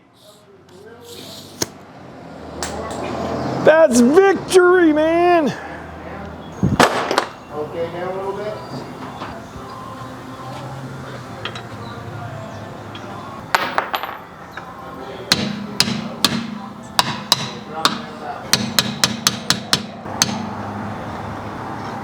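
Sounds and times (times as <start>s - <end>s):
hammer blows on metal: 15.3s - 20.6s.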